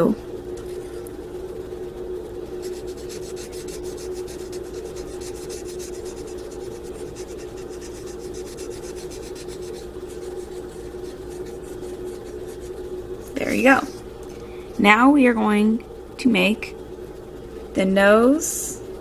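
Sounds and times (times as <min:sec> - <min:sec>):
steady low hum: 0:00.0 - 0:19.0
pencil scribbling on paper: 0:02.6 - 0:13.8.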